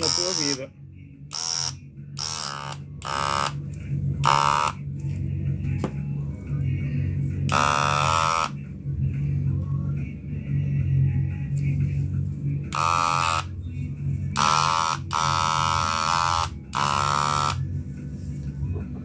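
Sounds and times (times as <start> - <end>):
electric hair clipper humming: 0.0 - 0.6, 1.3 - 3.6, 4.2 - 4.8, 7.5 - 8.6, 12.7 - 13.5, 14.4 - 17.7
background music with voice: 0.0 - 19.0.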